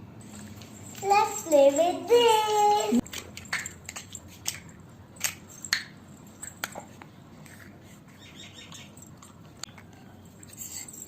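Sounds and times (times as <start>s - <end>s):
plastic toys clicking and tapping: 3.0s - 5.9s.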